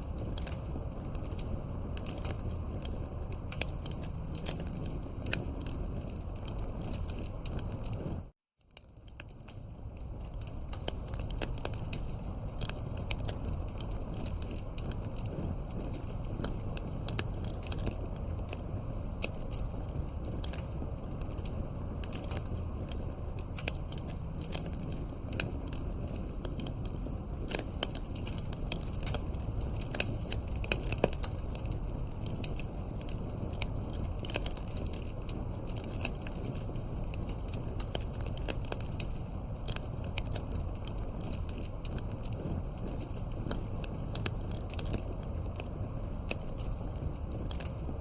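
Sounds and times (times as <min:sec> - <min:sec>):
flames rushing: 0:00.0 - 0:08.3, 0:08.9 - 0:48.0
campfire crackling and popping: 0:00.0 - 0:48.0.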